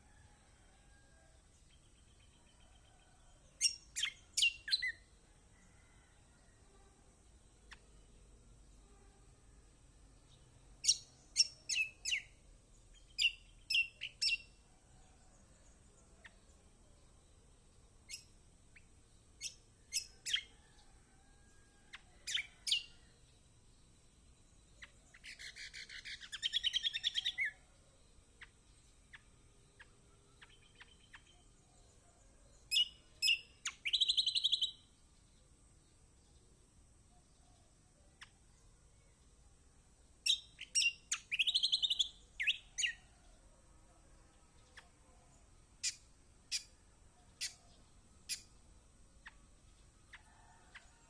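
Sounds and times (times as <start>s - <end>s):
bird chirping: 1.6s - 5.2s, 10.2s - 14.7s, 15.4s - 20.7s, 21.9s - 43.4s, 44.6s - 51.0s
buzzy bird trill: 40.3s - 43.0s.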